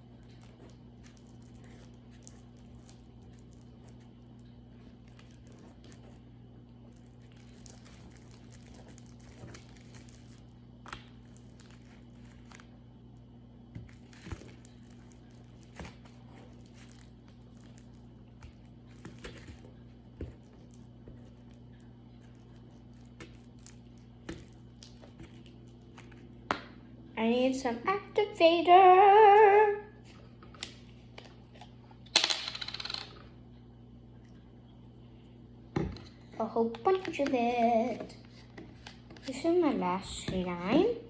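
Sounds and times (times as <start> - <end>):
slime squishing and crackling: 0.0 - 12.8, 13.8 - 26.3
steady low hum: 0.0 - 41.0.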